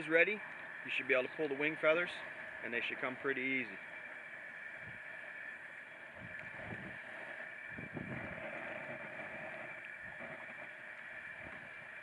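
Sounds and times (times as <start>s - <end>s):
wind buffeting microphone: 6.2s - 10.4s.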